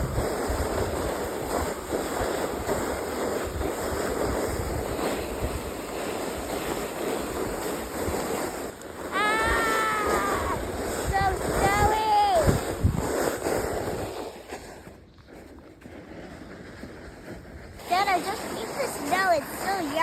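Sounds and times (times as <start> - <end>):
plastic sled scraping over snow: 0.0 - 20.0
wind buffeting microphone: 0.0 - 20.0
child calling out: 9.1 - 10.6, 11.2 - 12.5.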